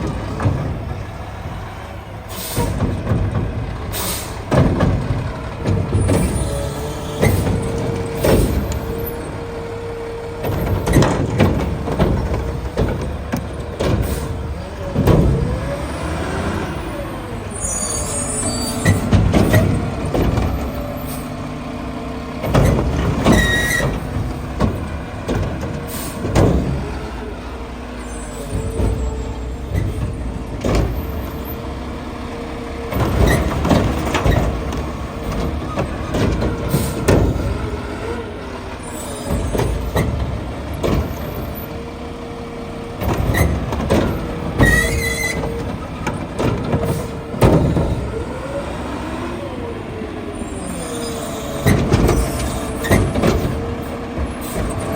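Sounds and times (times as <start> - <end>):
diesel engine whining: 0.0 - 54.9
air brake hisses: 3.9 - 4.4
knocks and bangs: 4.4 - 9.0.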